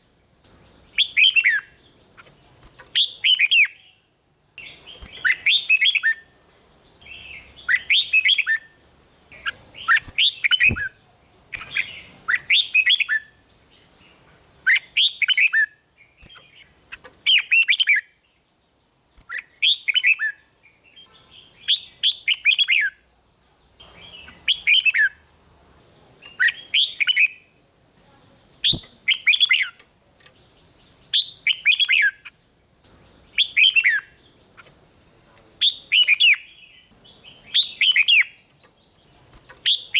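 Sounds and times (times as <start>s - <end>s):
bird singing whistled phrases: 0.9s - 1.8s, 4.6s - 6.3s, 19.3s - 20.4s, 21.0s - 23.0s, 31.1s - 32.3s, 33.3s - 34.2s, 35.3s - 38.4s.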